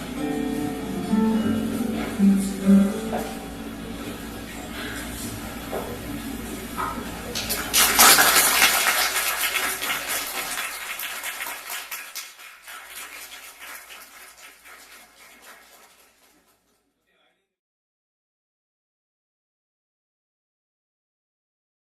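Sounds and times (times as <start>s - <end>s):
small audience applauding: 6.6s - 16.8s.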